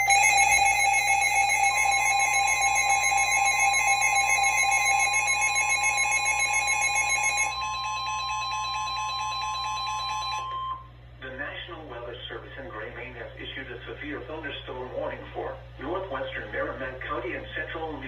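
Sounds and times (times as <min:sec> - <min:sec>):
electronic alarm tone: 0:00.0 - 0:10.9
second steady alarm tone: 0:00.0 - 0:11.0.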